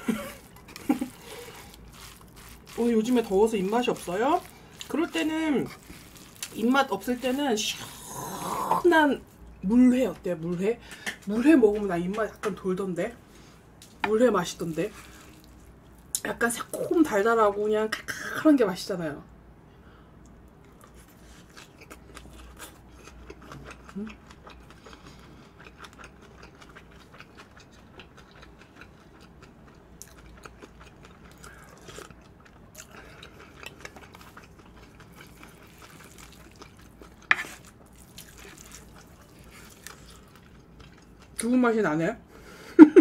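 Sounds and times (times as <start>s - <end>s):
wet chewing: 0.0s - 9.4s, 20.7s - 41.5s.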